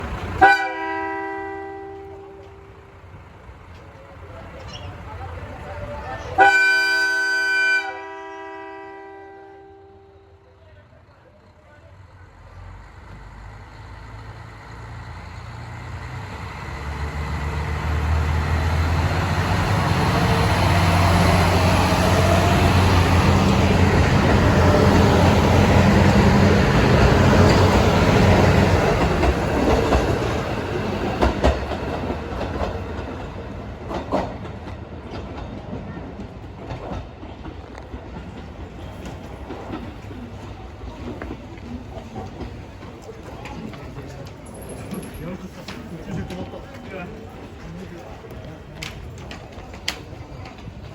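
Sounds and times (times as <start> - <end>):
train wheels clicking over rail joints: 0.0 - 0.5, 1.8 - 6.4, 11.4 - 50.9
diesel railcar engine: 0.0 - 50.9.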